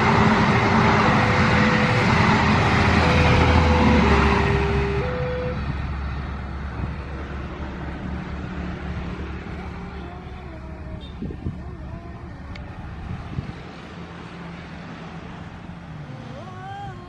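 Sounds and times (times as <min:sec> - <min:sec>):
train rumbling: 0:00.0 - 0:17.0
two-note warning tone: 0:01.0 - 0:05.7.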